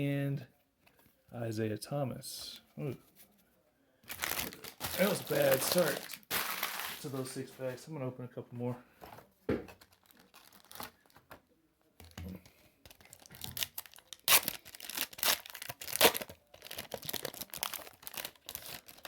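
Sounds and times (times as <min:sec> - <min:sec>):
wrapper tearing and crinkling: 0:04.1 - 0:07.3, 0:09.8 - 0:11.2, 0:12.9 - 0:19.0.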